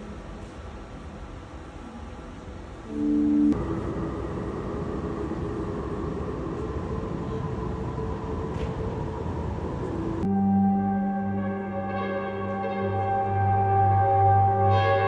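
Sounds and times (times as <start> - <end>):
dark electronic ambient music: 2.9 - 15.0.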